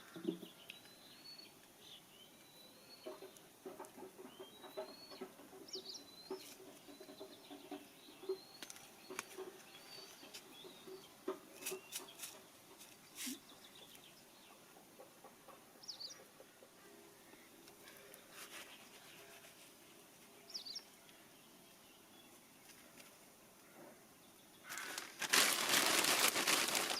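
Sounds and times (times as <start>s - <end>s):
low rhythmic clucking: 3.0s - 19.4s.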